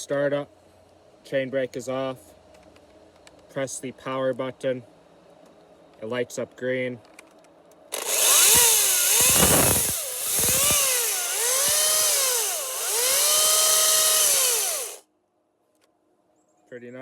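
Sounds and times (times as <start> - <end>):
chainsaw motor whining: 7.9 - 15.0.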